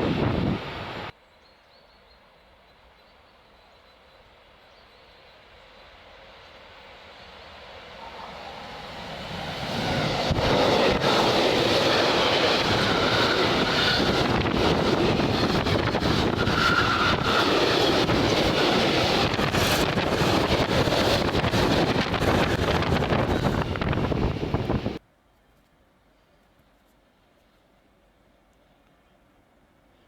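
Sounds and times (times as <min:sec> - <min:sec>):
wind buffeting microphone: 0:00.0 - 0:01.1, 0:08.8 - 0:25.0
freight train rumbling past: 0:00.0 - 0:01.2, 0:02.4 - 0:25.0.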